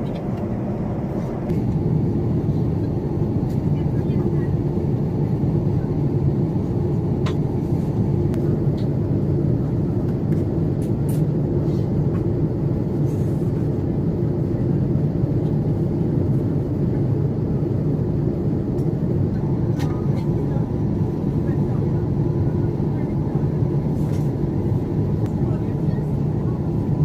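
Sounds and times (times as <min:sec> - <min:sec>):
aircraft cabin roar: 0:00.0 - 0:27.0.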